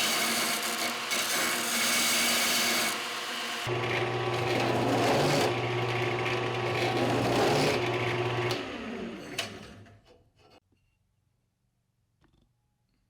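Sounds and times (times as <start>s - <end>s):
power tool motor grinding: 0.0s - 9.9s.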